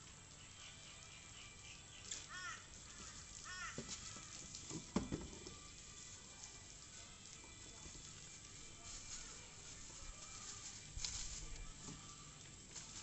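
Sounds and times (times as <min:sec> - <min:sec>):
bird chirping: 0:00.2 - 0:02.6.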